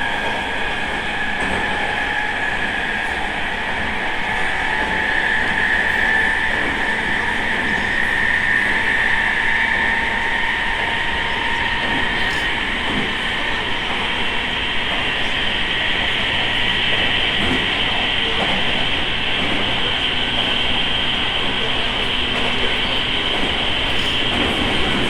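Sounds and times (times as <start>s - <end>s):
high motor whine: 0.0s - 25.0s
train wheels rumbling on rails: 0.0s - 25.0s.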